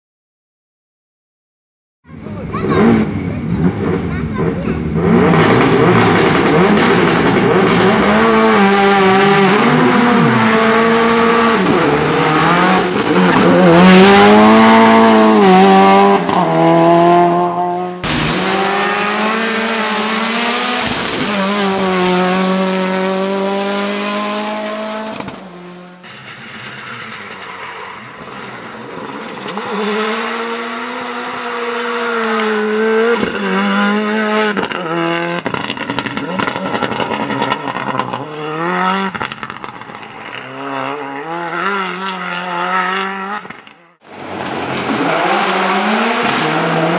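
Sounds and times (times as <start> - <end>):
rally car engine revving: 2.1 - 46.9
tyre squeal: 6.0 - 8.2, 11.4 - 13.6, 26.1 - 30.4, 33.1 - 33.7.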